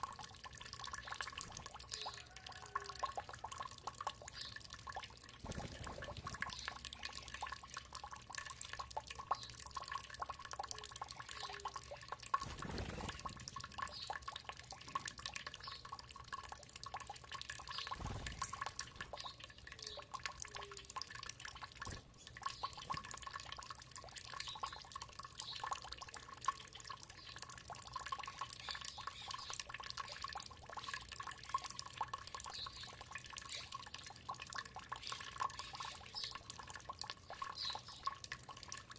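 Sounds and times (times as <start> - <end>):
water trickling and dripping: 0.0 - 38.9.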